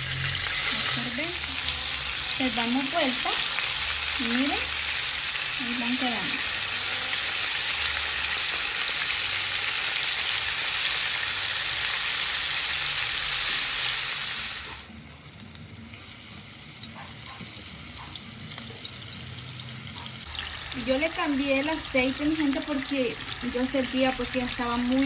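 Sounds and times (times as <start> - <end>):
food sizzling in hot oil: 0.0 - 25.0.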